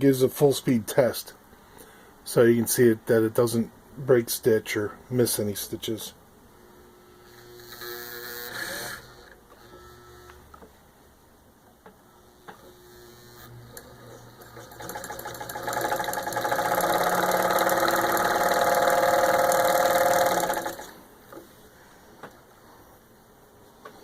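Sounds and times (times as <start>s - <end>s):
sewing machine running: 13.5s - 21.0s.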